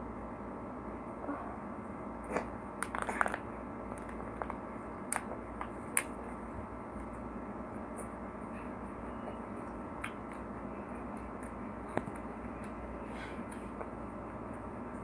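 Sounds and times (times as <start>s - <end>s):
crunchy chewing of fried food: 2.2s - 14.7s.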